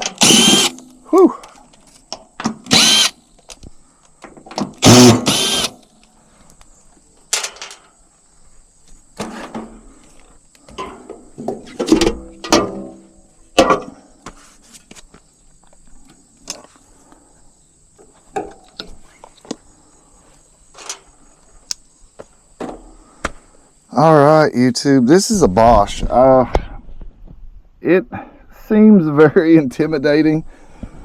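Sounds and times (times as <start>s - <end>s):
tools and metal parts clanking: 7.3s - 7.9s, 20.8s - 21.1s.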